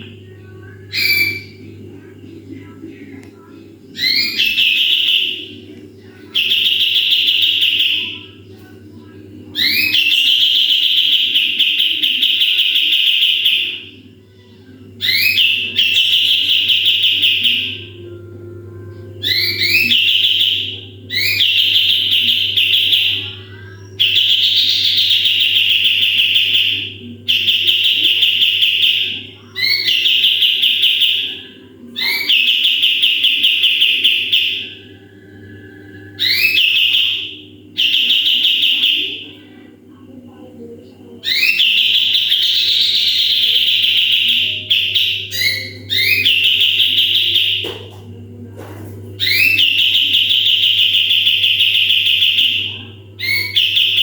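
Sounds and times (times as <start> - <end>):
steady low hum: 0.0 - 54.0
songbird trilling song: 0.9 - 1.6, 4.0 - 5.5, 9.5 - 13.9, 15.0 - 18.0, 19.2 - 34.9, 36.1 - 39.2, 41.2 - 47.9, 49.2 - 54.0.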